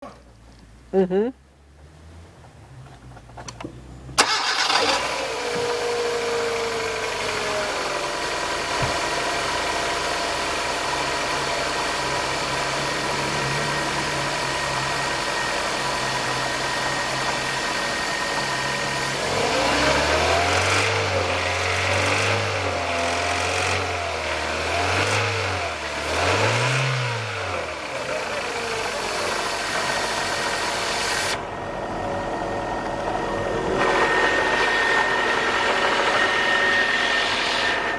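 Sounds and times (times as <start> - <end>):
car engine starting and idling: 0.0 - 37.9
car engine revving: 1.6 - 31.4.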